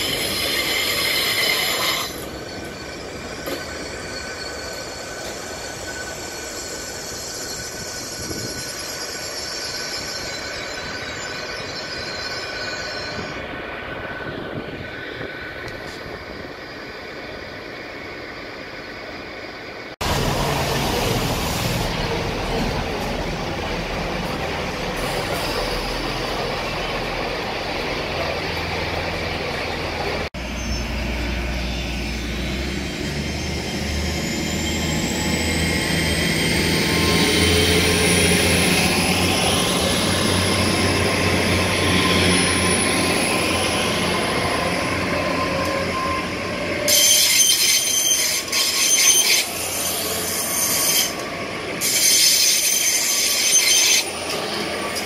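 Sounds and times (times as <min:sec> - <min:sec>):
loud wheel squeal: 0:00.0 - 0:13.5, 0:31.6 - 0:55.0
train engine rumble: 0:00.0 - 0:55.0
train traction whine: 0:00.0 - 0:55.0.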